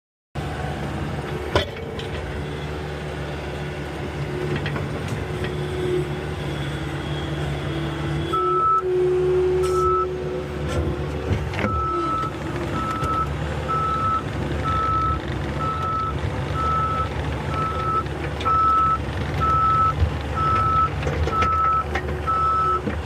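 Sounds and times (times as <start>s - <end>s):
loader engine running with whine: 0.4s - 23.0s
reversing alarm beeping: 8.3s - 8.9s, 9.6s - 10.2s, 11.6s - 22.8s.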